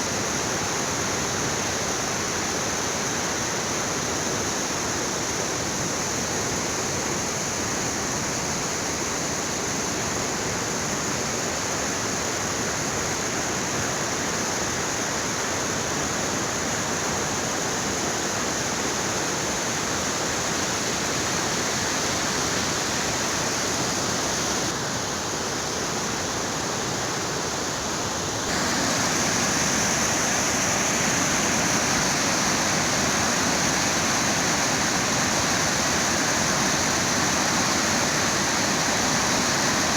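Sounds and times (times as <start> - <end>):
river water rushing: 28.2 - 39.9.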